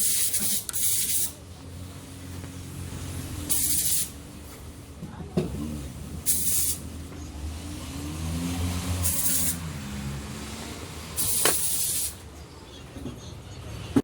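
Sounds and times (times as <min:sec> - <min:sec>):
spraying hiss: 0:00.0 - 0:01.4, 0:02.0 - 0:04.9, 0:05.8 - 0:07.0, 0:08.8 - 0:09.7, 0:11.0 - 0:12.2
car engine humming: 0:01.4 - 0:14.0.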